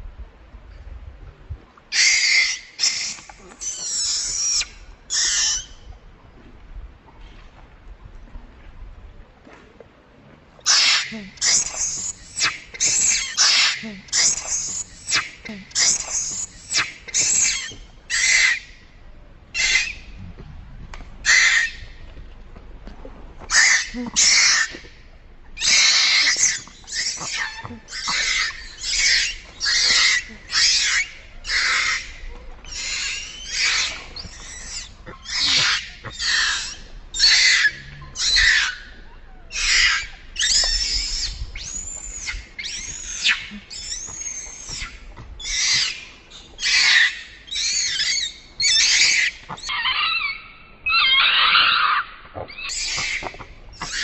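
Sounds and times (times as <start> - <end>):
monkey crying: 10.7 - 18.6, 19.6 - 20.0, 21.2 - 21.8, 25.6 - 32.1, 32.7 - 46.0, 46.6 - 54.0.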